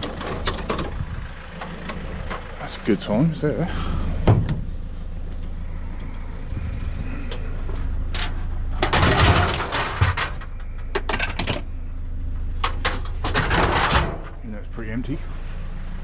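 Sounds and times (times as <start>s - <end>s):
clattering and rustling of objects: 0.0s - 2.6s, 5.4s - 14.4s
van engine humming: 0.0s - 16.0s.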